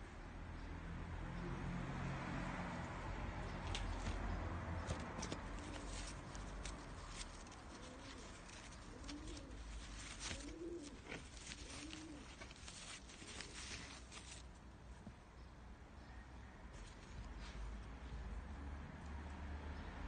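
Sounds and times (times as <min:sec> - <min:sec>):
short rustles and clicks: 0:04.8 - 0:14.6
bird cooing: 0:04.9 - 0:14.4.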